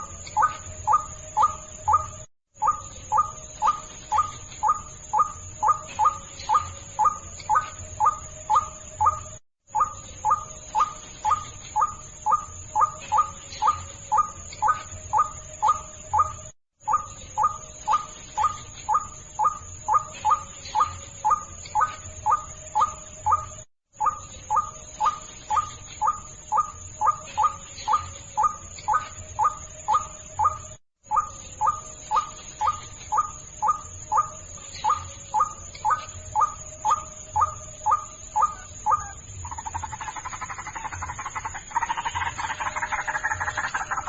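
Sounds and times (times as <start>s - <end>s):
croaking chatter: 31.1s - 44.0s.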